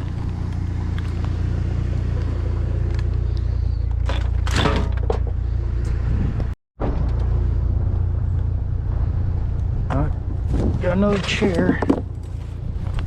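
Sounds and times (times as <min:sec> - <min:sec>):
truck engine idling: 0:00.0 - 0:04.4.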